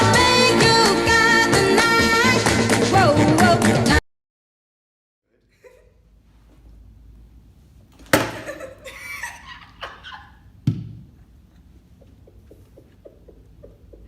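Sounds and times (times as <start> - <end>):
burst of laughter: 8.3 - 10.5.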